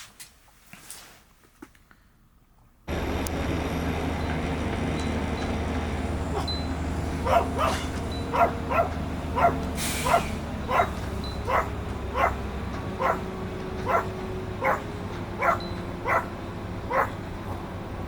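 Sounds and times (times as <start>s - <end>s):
dog barking: 7.2s - 12.4s, 13.0s - 17.2s.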